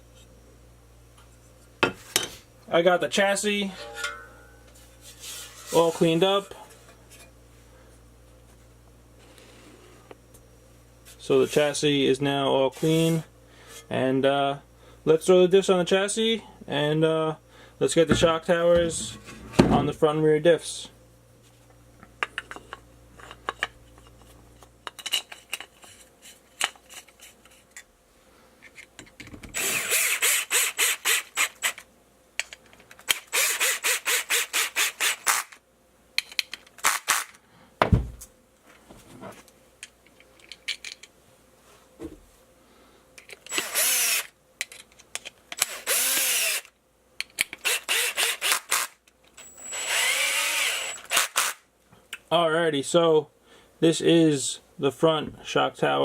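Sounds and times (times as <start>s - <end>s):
clicks and knocks of parts handled: 22.0s - 27.9s, 28.6s - 29.6s, 31.6s - 33.3s, 36.2s - 37.4s, 38.2s - 41.2s, 43.2s - 43.7s, 44.6s - 47.7s
power screwdriver driving screws: 29.5s - 31.8s, 33.1s - 35.6s, 36.8s - 37.3s, 43.5s - 44.3s, 45.6s - 46.7s, 47.6s - 51.6s.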